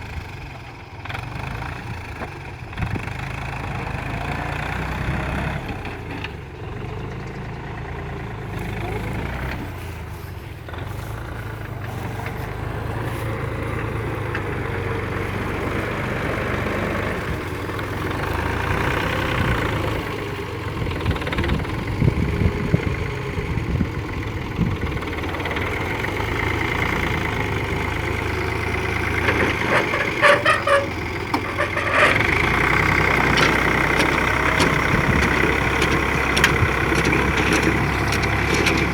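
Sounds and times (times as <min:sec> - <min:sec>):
tractor diesel engine running: 0:00.0 - 0:38.9
sharp knocks and rattles: 0:28.9 - 0:38.9.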